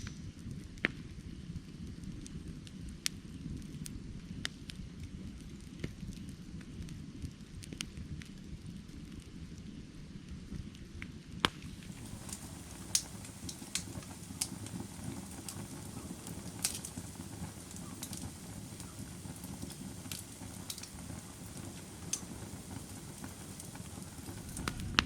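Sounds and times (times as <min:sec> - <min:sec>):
fire crackling and popping: 0:00.0 - 0:25.0
fire rumbling: 0:00.0 - 0:25.0.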